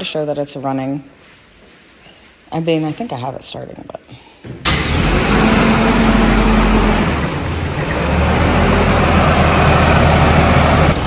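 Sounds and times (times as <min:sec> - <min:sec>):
car engine running: 0:04.7 - 0:11.0.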